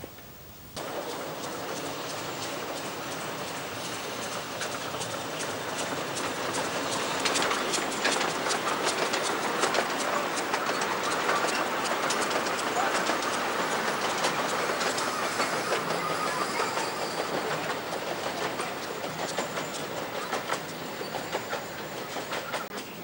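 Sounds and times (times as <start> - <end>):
miniature steam train running past: 0.0 - 23.0
wheels clicking over rail joints: 0.0 - 23.0.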